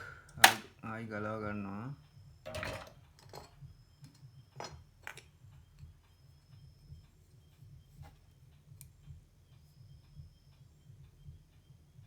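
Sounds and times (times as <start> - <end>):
small tools clicking and tapping: 2.5 - 5.9.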